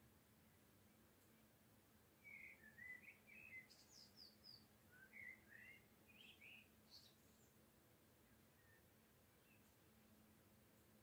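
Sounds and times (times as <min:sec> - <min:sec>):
songbird warbling faintly: 0:02.2 - 0:07.6.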